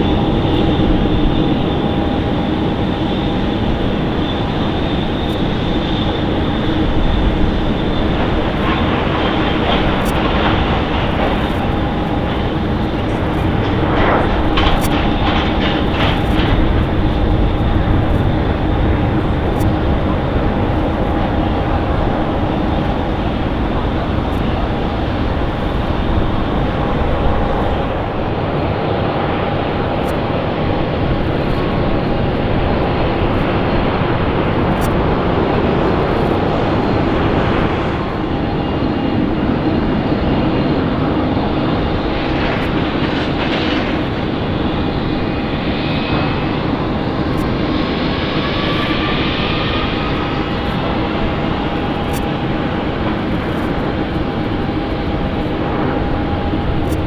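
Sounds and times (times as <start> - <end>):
jet engines running: 0.0 - 57.0
steady engine whine: 0.0 - 57.0.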